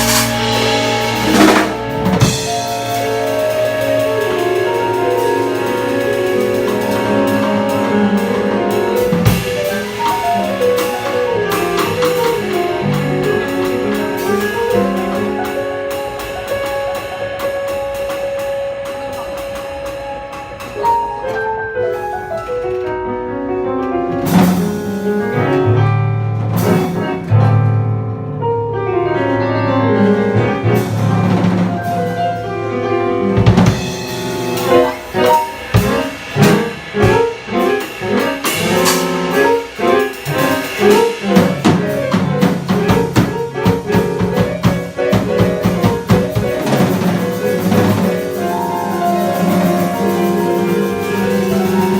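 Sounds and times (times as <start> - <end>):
long held note: 0.0 - 3.5
heavy low bass notes: 0.0 - 15.3
sharp loud band accents with drums: 0.0 - 15.6, 33.4 - 51.9
jazz combo playing: 0.0 - 51.9.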